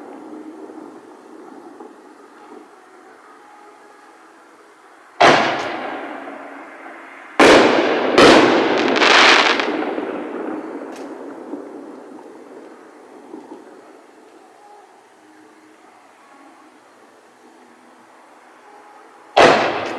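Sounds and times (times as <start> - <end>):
firework shells booming: 5.2 - 14.2, 19.4 - 19.9.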